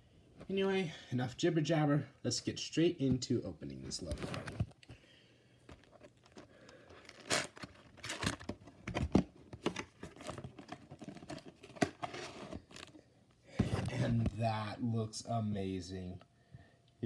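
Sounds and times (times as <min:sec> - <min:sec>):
plastic wrapping crinkling and tearing: 0:05.8 - 0:08.8.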